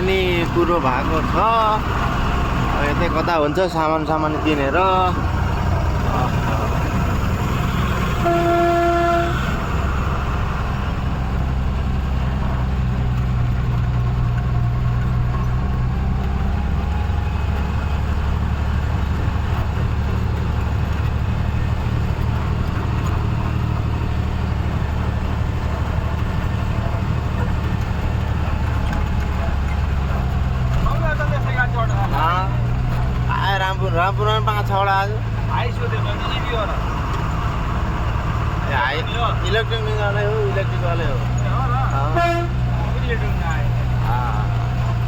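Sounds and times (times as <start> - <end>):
heavy truck engine running: 0.0 - 45.0
vehicle horn: 7.5 - 10.0, 41.8 - 42.9.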